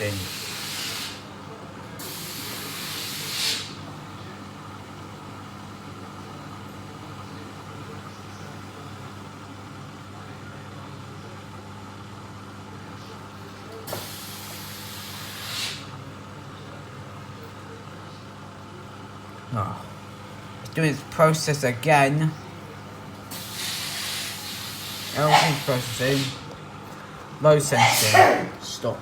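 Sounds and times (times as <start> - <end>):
washing machine humming: 0.0 - 29.0
rushes of hiss: 2.0 - 3.8, 23.3 - 26.4.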